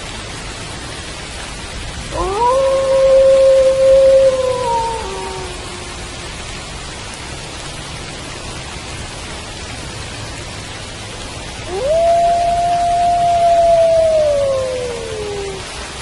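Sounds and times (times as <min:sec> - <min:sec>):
steady rain: 0:00.0 - 0:16.0
wolf howling: 0:02.1 - 0:06.2, 0:11.7 - 0:15.7.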